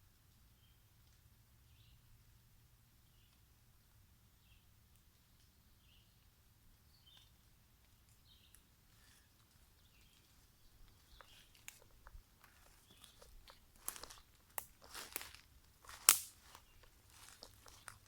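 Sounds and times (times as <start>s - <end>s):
footsteps on forest floor: 9.9s - 18.0s.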